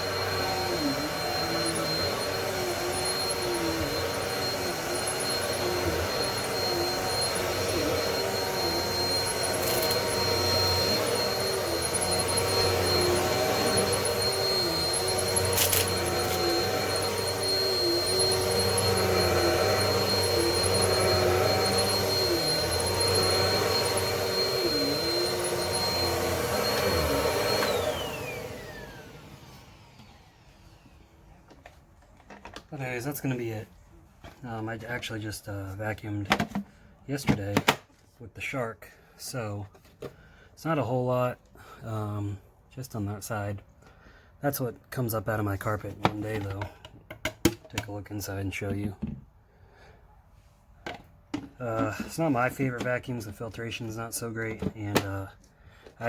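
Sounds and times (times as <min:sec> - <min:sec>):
vacuum cleaner whining on carpet: 0:00.0 - 0:32.6, 0:51.7 - 0:52.7.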